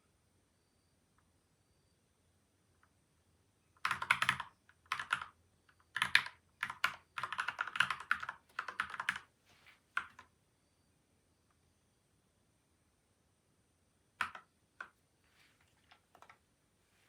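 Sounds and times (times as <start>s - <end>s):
typing on mechanical keyboard: 3.8s - 9.3s, 10.0s - 10.3s, 14.2s - 15.0s, 15.7s - 16.4s.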